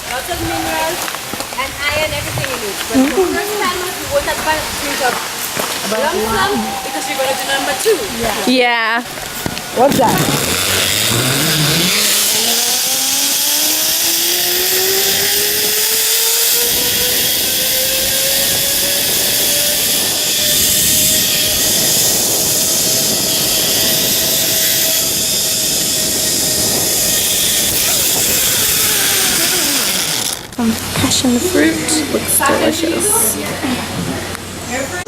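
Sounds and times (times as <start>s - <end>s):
wind rushing over microphone: 0.0s - 35.0s
zipline pulleys whirring on cable: 5.8s - 33.4s.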